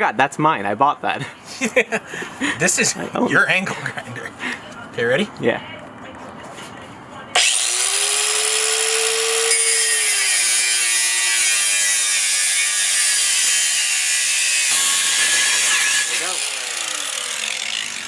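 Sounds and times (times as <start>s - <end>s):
angle grinder cutting metal: 7.4s - 18.0s.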